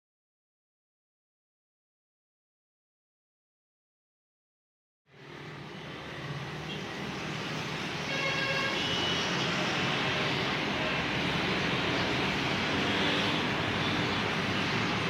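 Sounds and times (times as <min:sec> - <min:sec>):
road traffic roar: 0:05.1 - 0:15.0.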